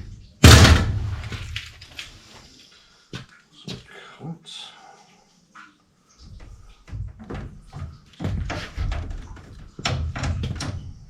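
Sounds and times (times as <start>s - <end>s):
heavy thumps: 0.4s - 1.8s.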